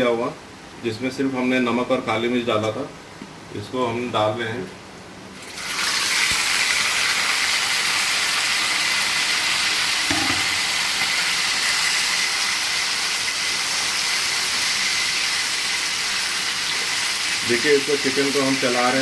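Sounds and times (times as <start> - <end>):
chicken sizzling in hot oil: 5.4 - 19.0
low knock: 10.1 - 10.7.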